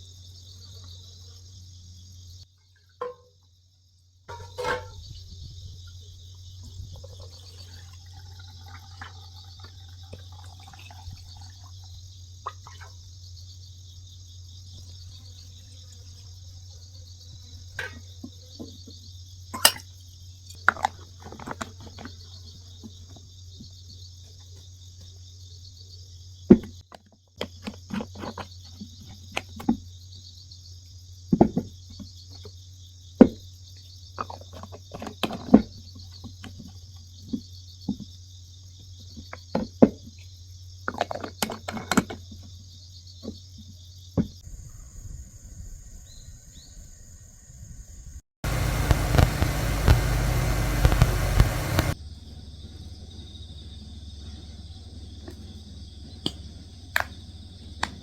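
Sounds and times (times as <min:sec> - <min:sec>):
crickets chirring: 0:00.0 - 0:58.0
knocks and clinks: 0:04.3 - 0:05.0
low hum: 0:48.4 - 0:52.0.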